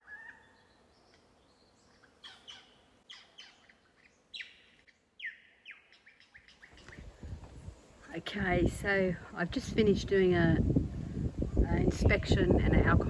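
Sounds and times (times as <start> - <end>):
birds chirping: 0.0 - 10.4.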